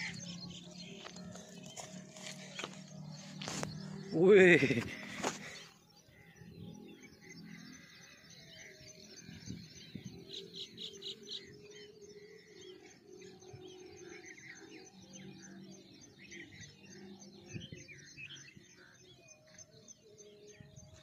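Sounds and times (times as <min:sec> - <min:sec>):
small birds chirping and calling: 0:00.0 - 0:21.0.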